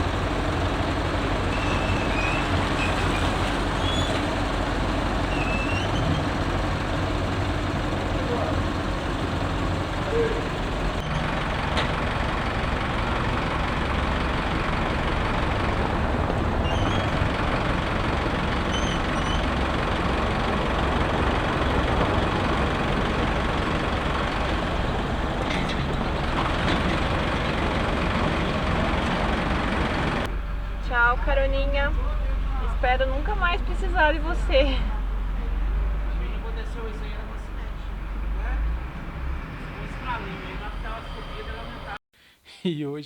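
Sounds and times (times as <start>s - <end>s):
tow truck engine running: 0.0s - 42.0s.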